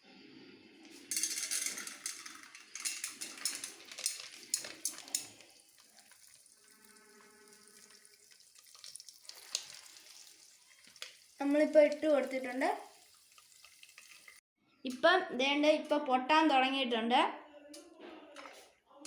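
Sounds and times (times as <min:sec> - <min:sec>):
popcorn kernels rattling and sizzling: 0:00.9 - 0:14.4.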